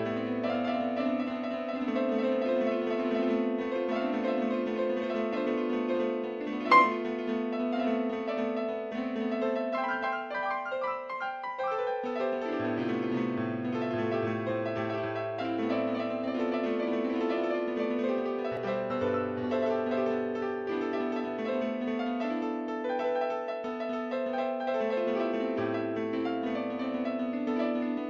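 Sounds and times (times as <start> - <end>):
slow piano music: 6.7 - 7.6.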